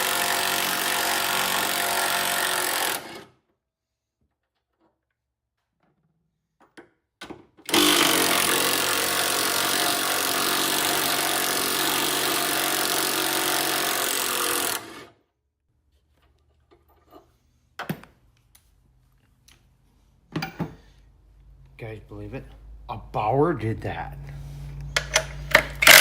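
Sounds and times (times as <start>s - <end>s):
impact wrench running: 0.0s - 3.3s, 7.7s - 15.1s, 25.0s - 26.0s.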